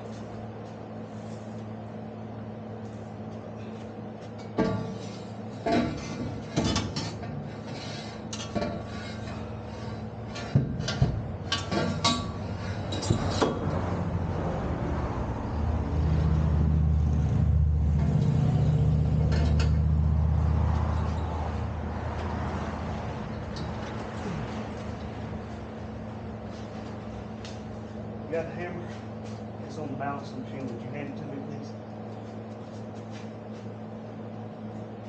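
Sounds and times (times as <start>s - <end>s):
steady low hum: 0.0s - 35.0s
metal pipe clanking: 4.4s - 13.7s.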